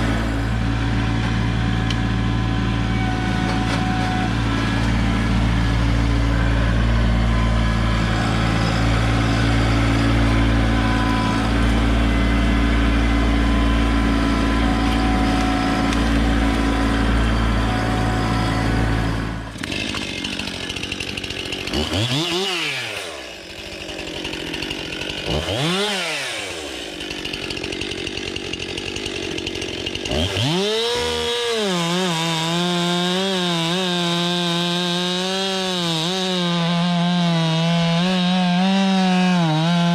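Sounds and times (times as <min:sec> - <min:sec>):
low engine drone: 0:00.0 - 0:19.7
chainsaw cutting wood: 0:00.0 - 0:39.9
chainsaw revving: 0:00.0 - 0:39.9.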